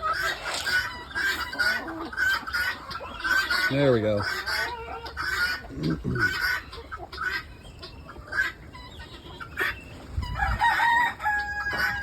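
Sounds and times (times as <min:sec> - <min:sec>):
chickens clucking: 0:00.0 - 0:12.0
rooster crowing: 0:10.3 - 0:12.0.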